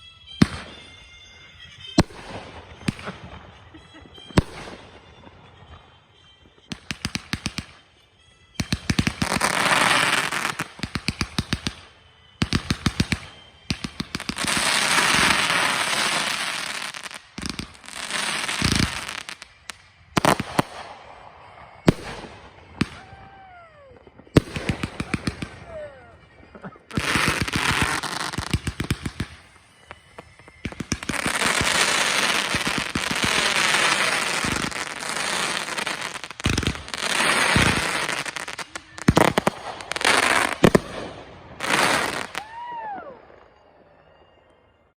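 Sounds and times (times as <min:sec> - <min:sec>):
fireworks crackling: 0:00.0 - 0:44.6
fireworks bangs: 0:00.0 - 0:44.8
fireworks booms: 0:08.6 - 0:44.2.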